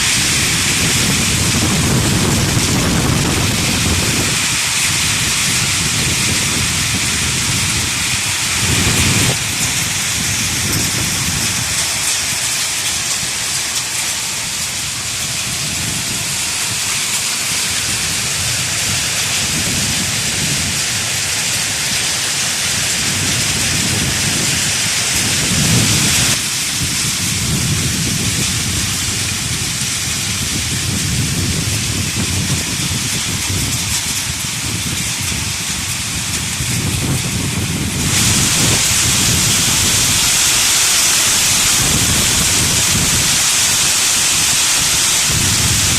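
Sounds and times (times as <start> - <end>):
rain and hail pelting: 0.0 - 45.9
low rumbling: 22.9 - 45.9.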